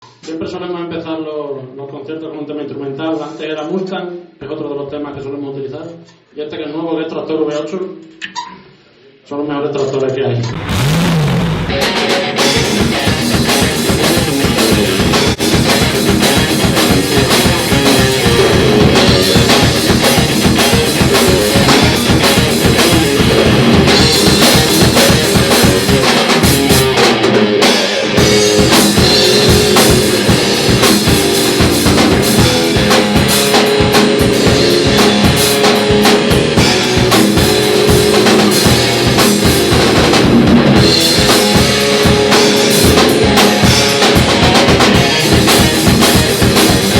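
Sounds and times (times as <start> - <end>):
rock band playing live: 10.5 - 46.9.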